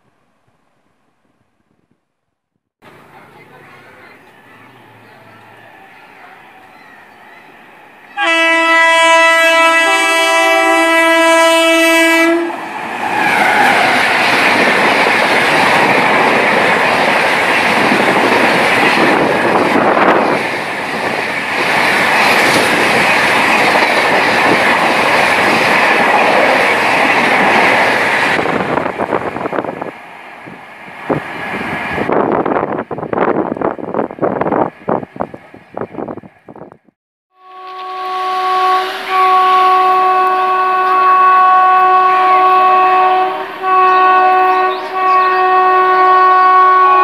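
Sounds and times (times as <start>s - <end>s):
train passing at speed: 2.8s - 36.9s, 37.5s - 47.0s
locomotive horn blast: 8.1s - 12.6s, 37.3s - 47.0s.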